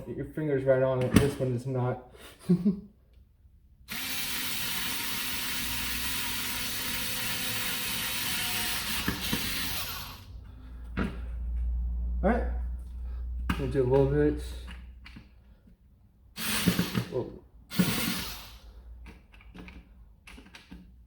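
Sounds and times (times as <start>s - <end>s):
electric screwdriver running: 3.9s - 10.3s, 16.4s - 18.6s.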